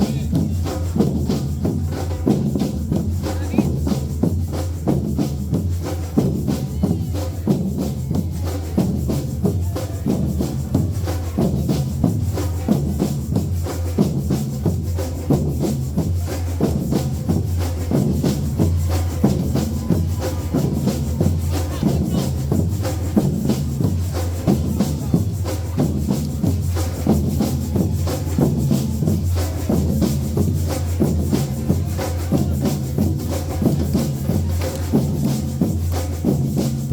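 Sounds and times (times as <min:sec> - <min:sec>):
rattling percussion and drums: 0:00.0 - 0:36.9.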